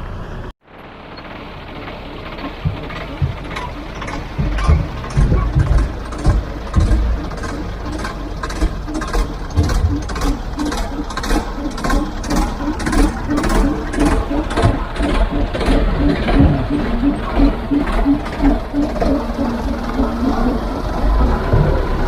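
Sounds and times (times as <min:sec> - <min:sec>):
diesel engine running: 0:00.0 - 0:22.0
rhythmic machine clatter: 0:01.1 - 0:22.0.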